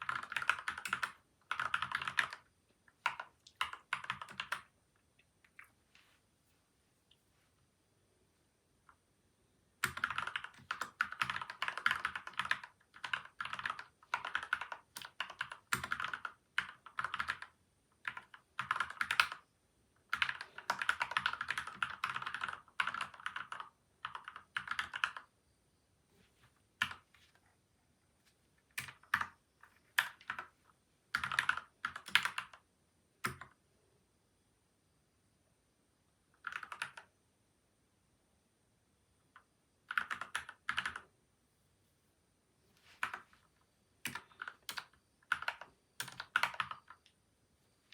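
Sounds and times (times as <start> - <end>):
mechanical keyboard typing: 0.0 - 4.7, 9.8 - 19.4, 20.0 - 25.3, 28.8 - 30.5, 31.1 - 32.6, 33.2 - 33.6, 36.4 - 37.1, 39.4 - 41.1, 44.0 - 47.1.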